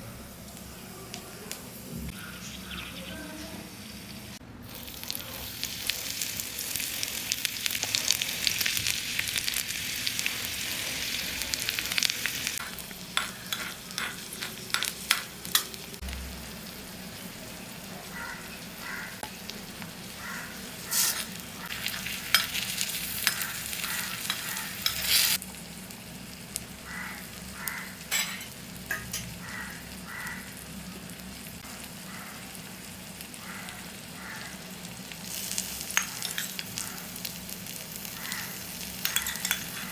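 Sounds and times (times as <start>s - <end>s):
food sizzling in oil: 0.0s - 39.9s
spoon scraping a pan: 12.6s - 15.8s, 20.8s - 25.4s, 35.4s - 36.8s, 38.4s - 39.9s.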